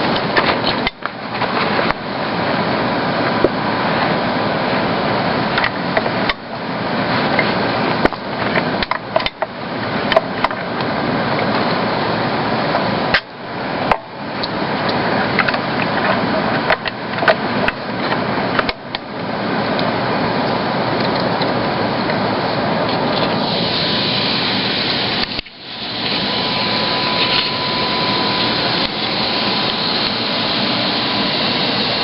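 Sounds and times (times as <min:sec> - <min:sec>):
vacuum cleaner running: 0:09.6 - 0:32.0.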